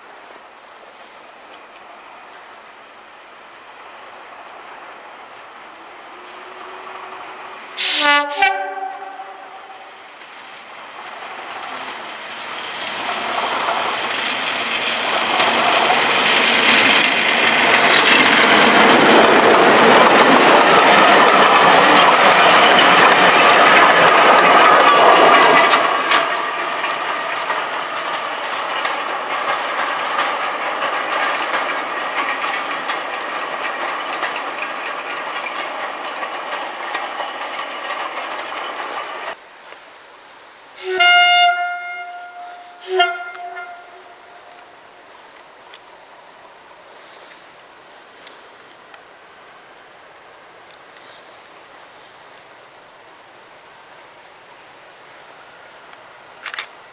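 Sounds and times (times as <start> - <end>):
diesel locomotive engine: 0.0 - 56.9
train wheels on rails: 0.0 - 56.9.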